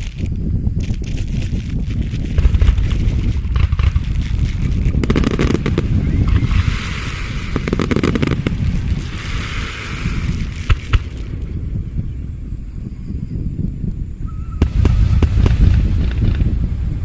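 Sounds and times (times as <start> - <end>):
firework bangs: 0.0 - 11.5, 14.6 - 16.6
firework crackling hiss: 0.0 - 11.6
low rumble: 0.0 - 17.0.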